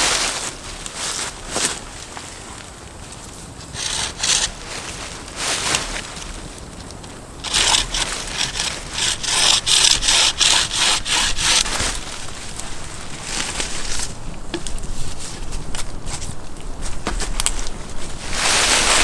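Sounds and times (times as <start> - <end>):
hand saw cutting wood: 3.7 - 4.7, 7.4 - 14.1.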